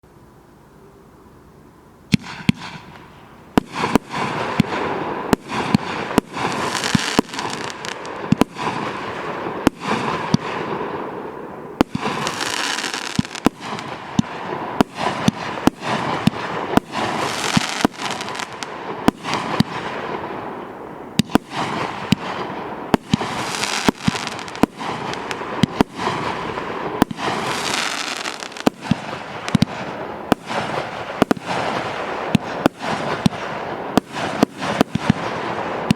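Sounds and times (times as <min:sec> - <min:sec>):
firework bangs: 0:02.1 - 0:35.9
firework hissing: 0:02.4 - 0:35.9.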